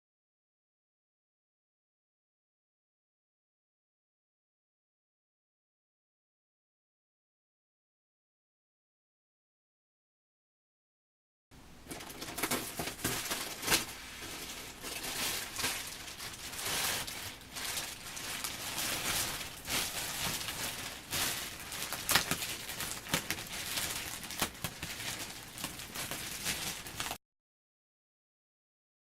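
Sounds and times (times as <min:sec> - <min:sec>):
plastic packaging crinkling: 0:11.8 - 0:27.2.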